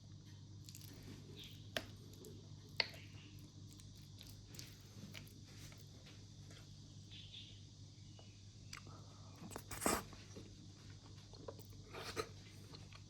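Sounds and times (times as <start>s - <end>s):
person chewing crunchy food: 8.7s - 13.0s.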